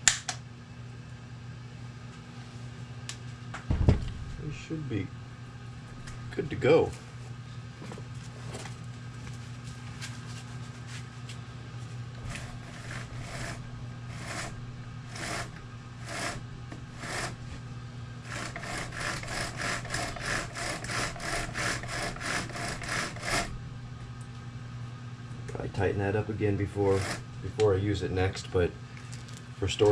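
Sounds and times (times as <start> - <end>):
steady low hum: 0.0 - 29.9
rasping hand tool strokes: 12.2 - 17.4, 18.2 - 23.5, 26.8 - 27.2.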